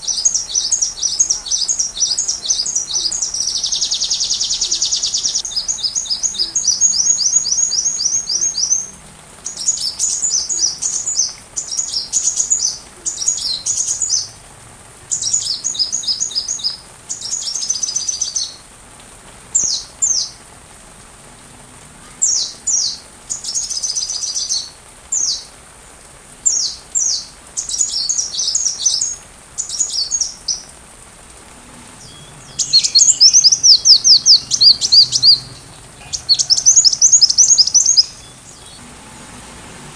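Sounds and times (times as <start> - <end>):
sunbird chirping song: 0.0 - 14.3, 15.1 - 18.6, 32.0 - 38.9.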